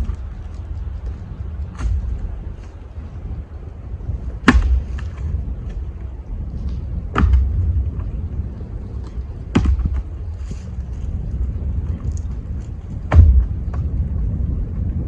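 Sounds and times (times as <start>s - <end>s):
wind rumble on microphone: 0.0s - 15.0s
firewood thudding down: 4.4s - 5.3s, 7.1s - 7.7s, 9.5s - 10.1s, 13.1s - 13.9s.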